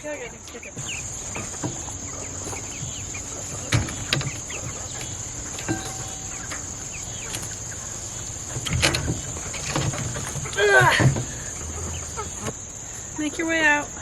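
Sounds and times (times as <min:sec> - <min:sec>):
high insect drone: 0:00.0 - 0:14.0
sharp knocks: 0:00.8 - 0:07.8.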